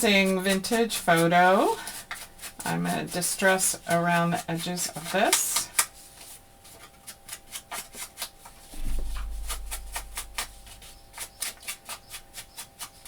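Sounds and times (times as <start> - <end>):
low rumble: 8.8 - 11.0.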